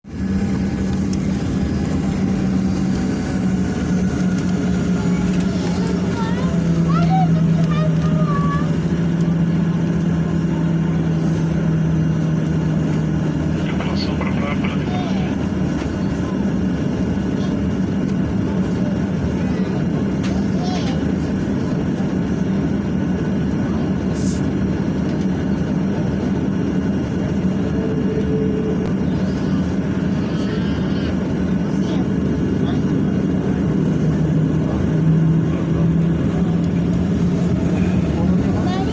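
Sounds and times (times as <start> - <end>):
jet engines droning: 0.1 - 38.9.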